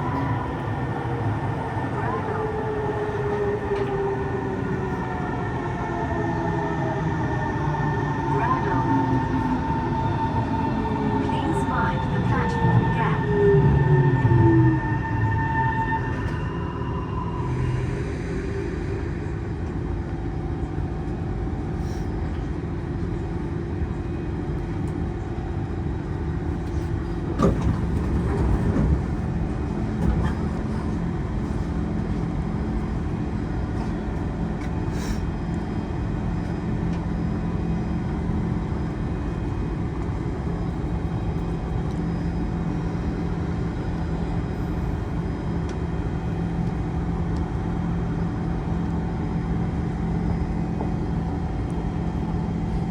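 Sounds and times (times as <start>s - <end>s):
train cabin hum: 25.8s - 42.1s.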